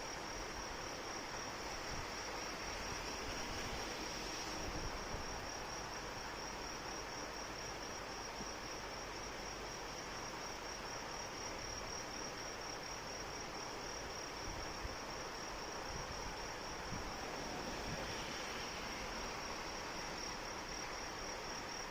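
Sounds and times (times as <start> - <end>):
steady rain: 0.0 - 21.9.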